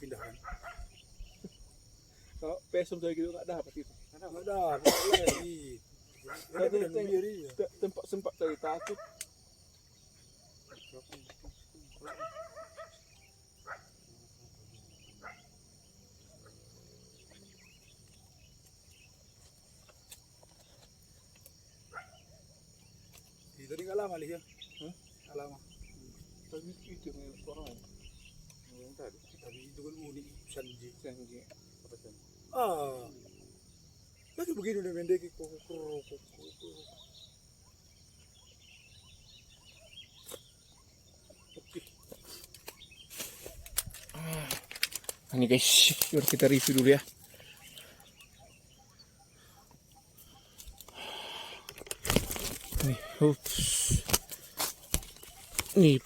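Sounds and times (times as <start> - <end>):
crickets chirring: 0.0 - 56.0
insect drone: 0.0 - 56.0
rustling: 42.3 - 47.7, 51.9 - 56.0
short sharp chirps: 52.7 - 54.4.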